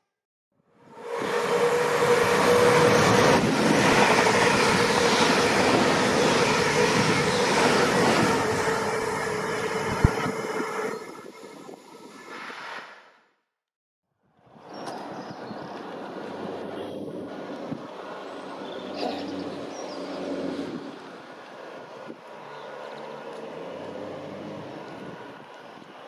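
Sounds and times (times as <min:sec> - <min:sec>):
train wheels rushing on rails: 0:00.9 - 0:11.8.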